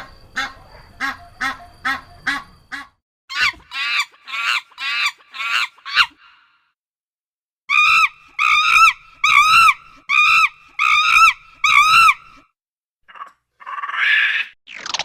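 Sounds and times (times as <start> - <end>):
animal crying: 7.7 - 12.4.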